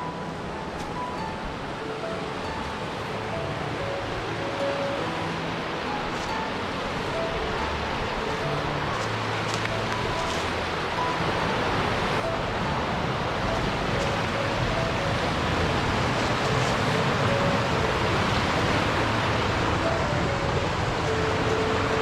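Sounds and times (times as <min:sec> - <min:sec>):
steady rushing noise: 0:00.0 - 0:22.0.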